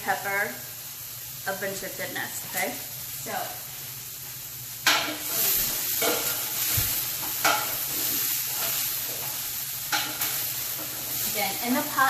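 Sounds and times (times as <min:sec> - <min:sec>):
vegetables sizzling in a pot: 0:00.0 - 0:12.0
utensil scraping a pot: 0:04.9 - 0:11.6.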